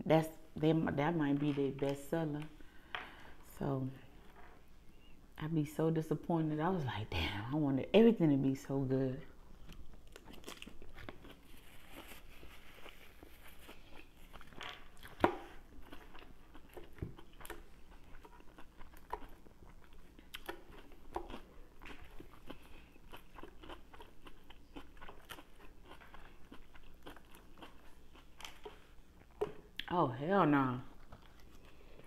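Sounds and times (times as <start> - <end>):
chewing crunchy salad: 9.6 - 30.0, 30.9 - 32.0.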